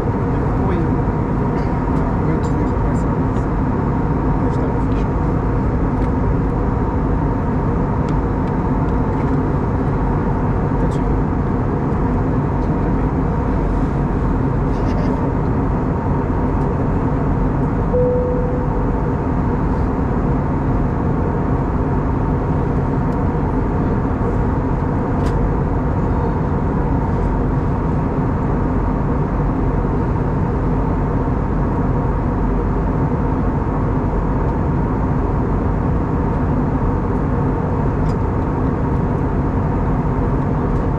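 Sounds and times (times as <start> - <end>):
airliner cabin noise: 0.0 - 29.2
steady multi-tone hum: 0.0 - 40.9
short tone: 17.9 - 19.0.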